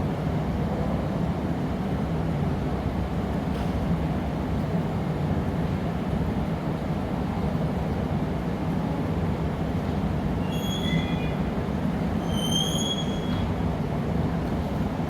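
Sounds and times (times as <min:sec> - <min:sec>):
high-pitched metallic squeal: 0:10.5 - 0:11.4.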